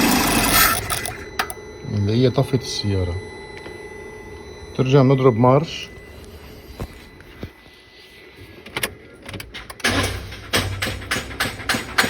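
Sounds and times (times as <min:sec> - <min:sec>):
rapid starter clicking: 0:00.0 - 0:01.6.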